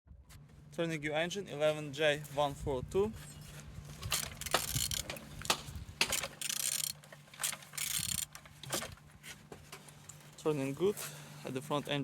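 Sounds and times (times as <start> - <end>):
socket ratchet wrench clicking: 4.2 - 5.1, 6.1 - 8.4.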